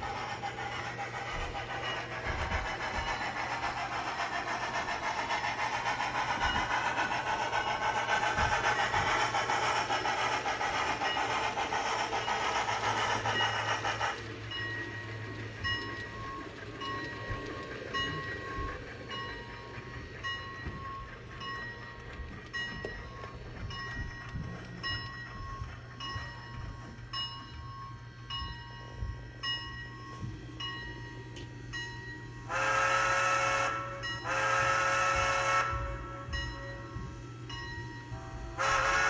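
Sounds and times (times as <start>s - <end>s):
train horn: 32.5s - 36.6s, 38.2s - 39.0s.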